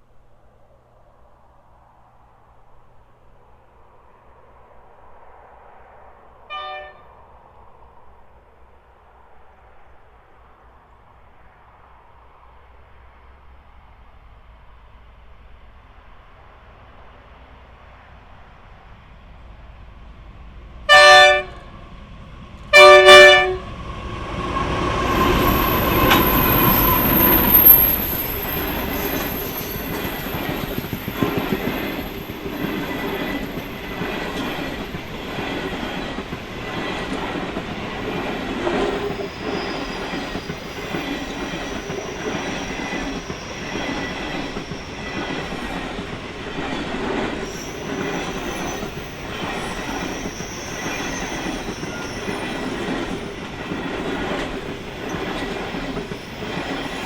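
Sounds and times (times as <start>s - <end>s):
train rumble: 0.0s - 57.0s
train horn blasts: 6.5s - 7.2s, 20.9s - 21.8s, 22.7s - 23.8s
high wheel squeal: 23.6s - 57.0s.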